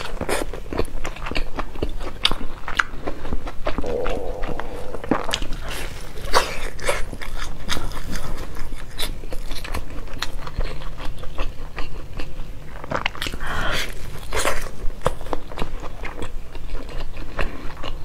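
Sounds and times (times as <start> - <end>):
crunchy chewing of flatbread: 0.0 - 3.3, 9.4 - 18.0.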